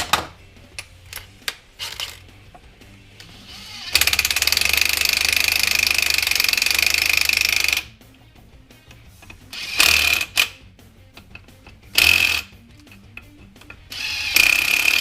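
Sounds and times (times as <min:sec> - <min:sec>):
power tool hammering and whining: 0:03.4 - 0:07.9, 0:09.2 - 0:10.6, 0:11.2 - 0:12.6, 0:13.5 - 0:15.0.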